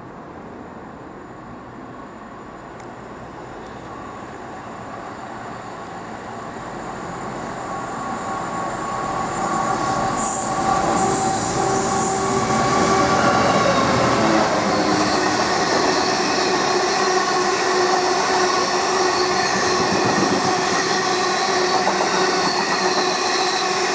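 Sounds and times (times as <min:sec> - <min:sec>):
freight train on rails: 0:00.0 - 0:23.9
high hiss or squeal: 0:05.3 - 0:23.9.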